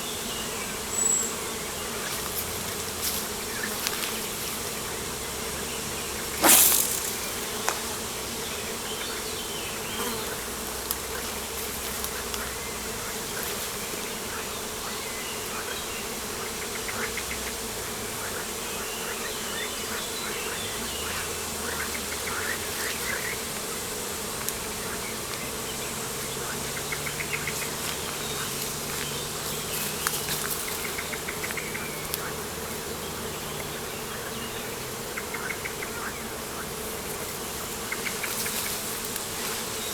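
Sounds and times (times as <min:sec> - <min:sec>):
insects buzzing: 0:00.0 - 0:39.9
small birds chirping: 0:03.4 - 0:10.3, 0:24.8 - 0:36.4.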